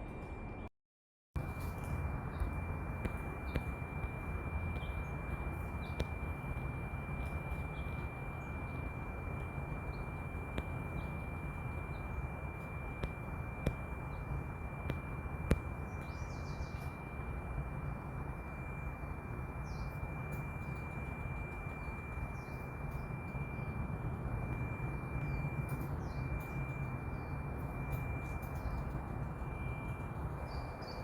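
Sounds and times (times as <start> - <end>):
low rumbling noise: 1.4 - 31.0
faint bird chirps: 15.6 - 17.2, 18.4 - 23.8, 24.4 - 31.0.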